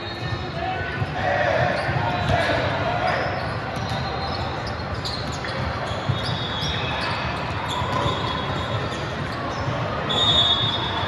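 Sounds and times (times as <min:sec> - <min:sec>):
background voices and movement: 0:00.2 - 0:04.8
sneakers squeaking on floor: 0:03.3 - 0:11.0.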